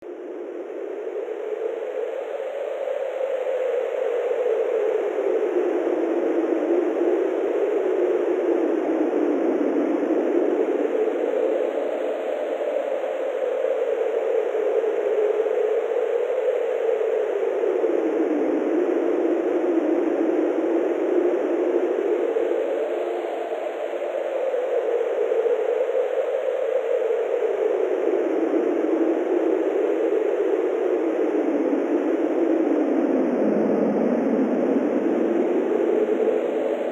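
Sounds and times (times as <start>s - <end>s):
wind blowing: 30.4s - 36.9s.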